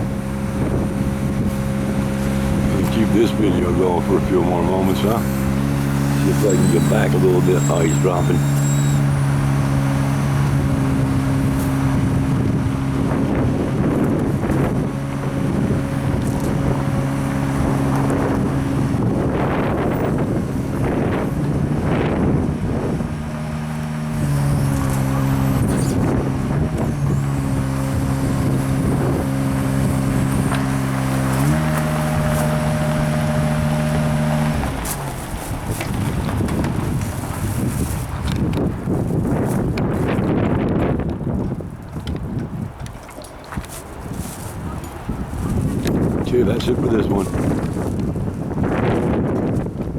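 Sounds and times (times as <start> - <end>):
truck engine running at raised idle: 0.0 - 37.7.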